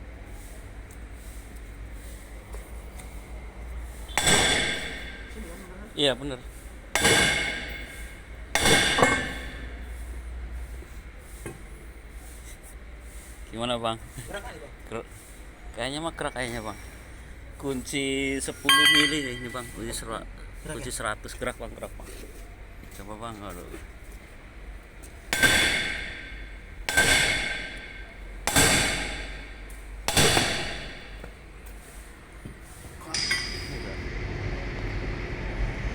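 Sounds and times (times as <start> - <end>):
hammer striking steel: 4.1 - 5.6, 7.0 - 9.8, 18.7 - 19.8, 25.3 - 31.4, 33.0 - 33.9.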